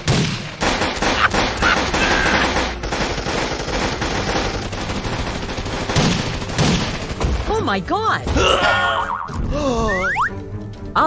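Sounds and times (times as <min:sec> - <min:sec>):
rapid machine-gun-like rattling: 0:00.6 - 0:07.7.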